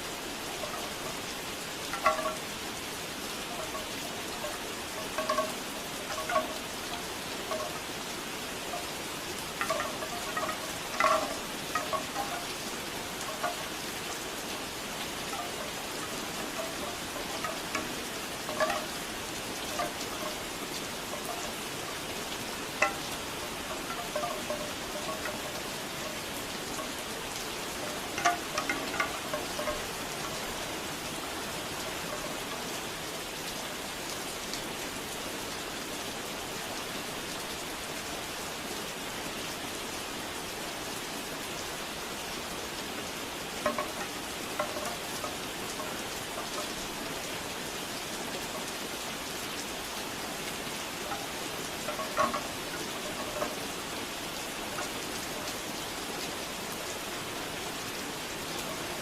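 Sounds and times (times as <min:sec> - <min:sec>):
bamboo wind chimes knocking: 0:00.0 - 0:33.0, 0:43.5 - 0:56.4
steady rain falling: 0:00.0 - 0:59.0.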